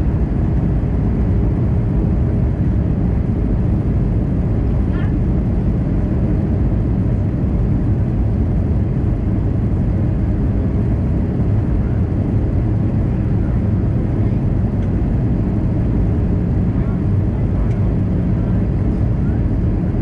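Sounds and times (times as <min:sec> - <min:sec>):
airliner cabin noise: 0:00.0 - 0:20.0.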